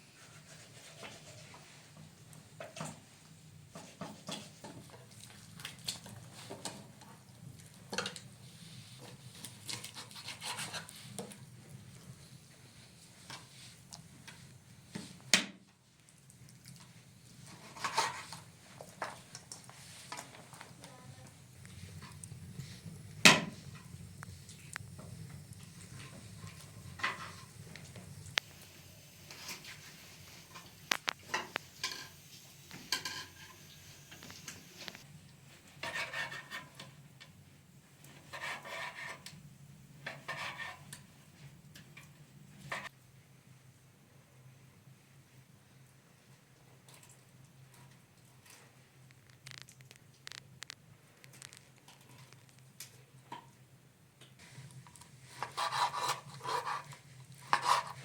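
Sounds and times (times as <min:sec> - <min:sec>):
steady low hum: 0:21.0 - 0:35.1.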